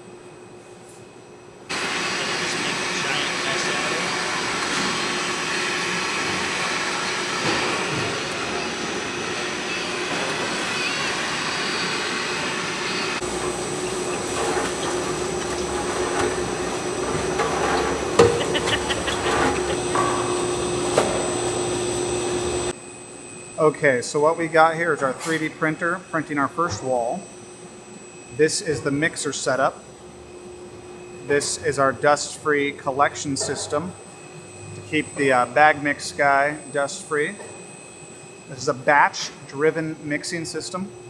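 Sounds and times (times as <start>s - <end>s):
mixer and pump droning: 1.7s - 22.8s.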